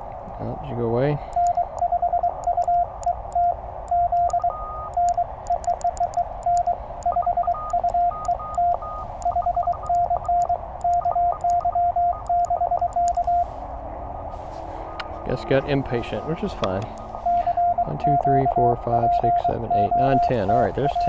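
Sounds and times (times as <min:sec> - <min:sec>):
receiver hiss: 0:00.0 - 0:21.0
faint higher-pitched morse code: 0:00.4 - 0:13.6, 0:14.2 - 0:21.0
morse code tone: 0:01.2 - 0:21.0
paddle clicks: 0:05.0 - 0:06.8, 0:16.5 - 0:17.2.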